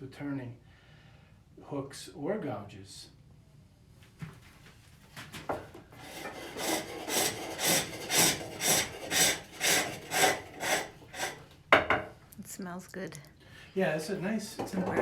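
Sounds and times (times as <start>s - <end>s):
hook tool shaving wood rasp: 6.0s - 11.4s.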